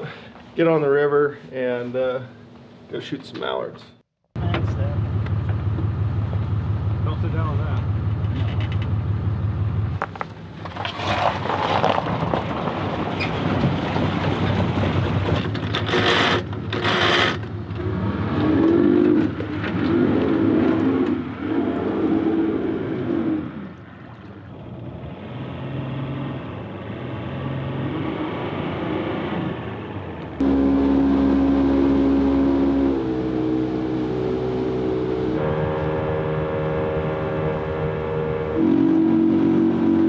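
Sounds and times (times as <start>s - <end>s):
boat motor running: 30.4s - 40.0s.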